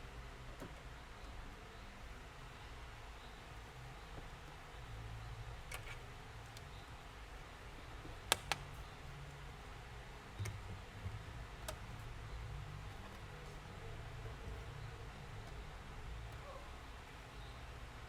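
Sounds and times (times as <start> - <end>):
low background hum: 0.0 - 18.0
sharp clicks: 8.3 - 8.8.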